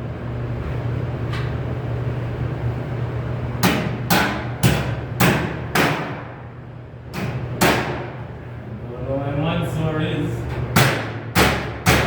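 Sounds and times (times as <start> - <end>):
steady low hum: 0.0 - 12.0
hammer blows on sheet metal: 10.7 - 12.0.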